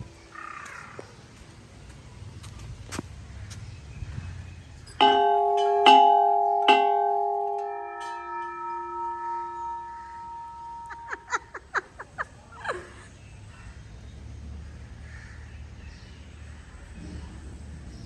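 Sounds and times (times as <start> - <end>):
temple bell ringing: 5.0 - 11.6.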